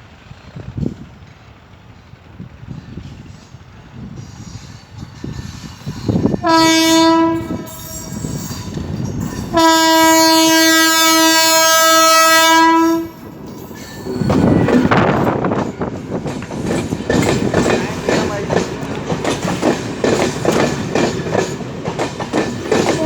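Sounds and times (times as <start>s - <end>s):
train rumbling on track: 0.0s - 23.0s
train horn blasts: 6.2s - 8.8s, 9.4s - 13.2s.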